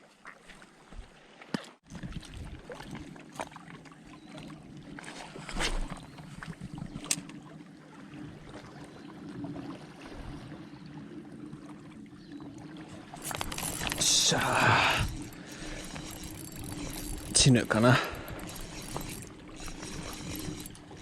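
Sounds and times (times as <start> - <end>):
seawater washing at shore: 12.9 - 21.0
low hum: 13.2 - 21.0.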